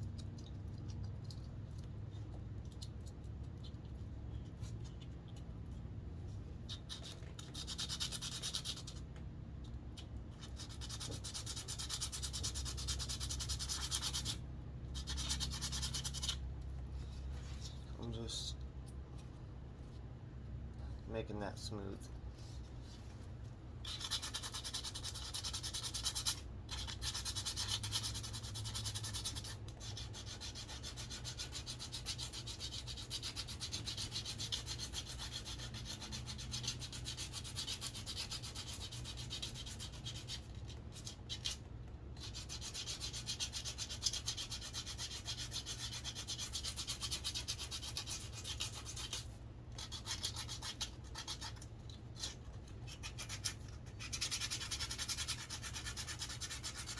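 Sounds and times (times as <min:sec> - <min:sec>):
sandpaper rubbing on wood: 0:42.2 - 0:49.2.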